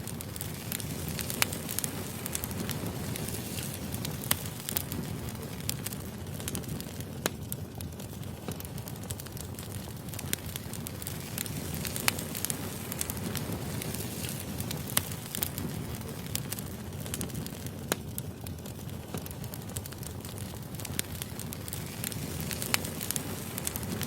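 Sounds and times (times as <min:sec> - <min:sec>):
crackles and pops of burning logs: 0:00.0 - 0:24.0
wood fire burning: 0:00.0 - 0:24.0.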